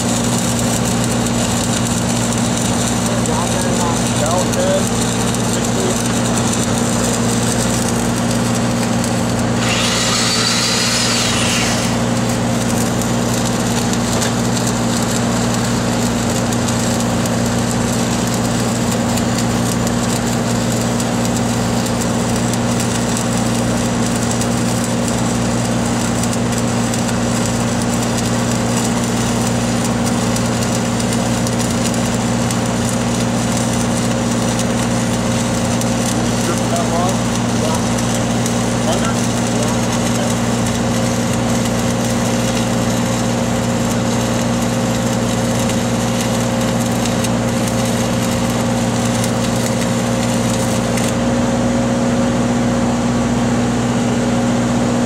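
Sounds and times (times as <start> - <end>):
welding arc crackling: 0.0 - 51.7
welding machine engine running: 0.0 - 55.0
bright hiss: 9.5 - 13.0.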